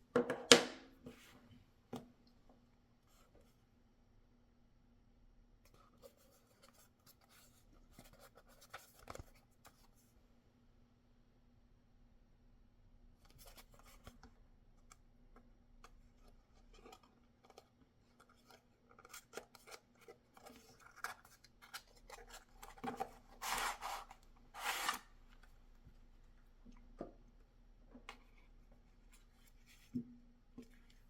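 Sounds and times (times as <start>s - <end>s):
packaging clicks and scrapes: 18.2s - 25.1s
packaging cutting or tearing: 23.4s - 25.1s.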